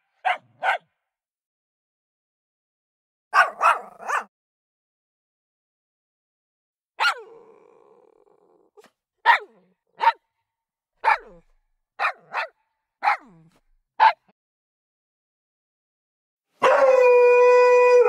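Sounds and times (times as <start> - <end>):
recorded dog barks: 0.0 - 1.0, 3.3 - 4.3, 7.0 - 7.4, 9.2 - 10.3, 11.0 - 13.4, 14.0 - 14.3, 16.6 - 17.2.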